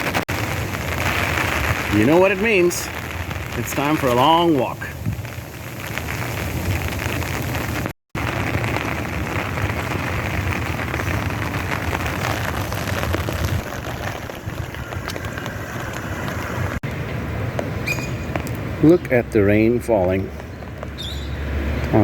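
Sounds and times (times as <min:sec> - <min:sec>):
rain falling: 0:00.0 - 0:16.9
wind rumble on microphone: 0:00.0 - 0:18.8.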